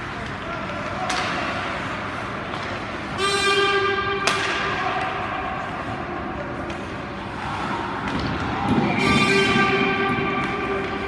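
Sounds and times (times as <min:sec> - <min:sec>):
hockey rink noise: 0:00.0 - 0:11.0.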